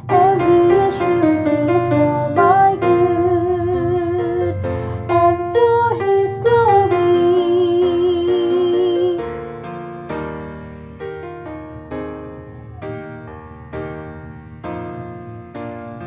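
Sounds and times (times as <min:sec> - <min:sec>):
woman singing with vibrato: 0:00.0 - 0:09.3
piano accompaniment: 0:00.0 - 0:16.0.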